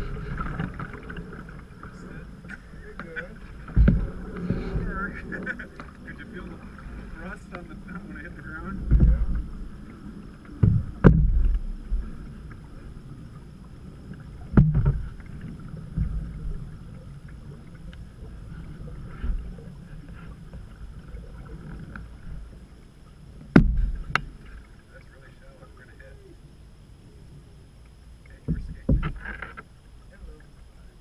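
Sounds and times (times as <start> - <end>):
water and paddling rumble: 0.0 - 31.0
knocks on boat: 3.7 - 4.7, 8.7 - 9.4, 10.6 - 12.0, 14.5 - 15.1, 23.5 - 24.3, 28.4 - 29.4.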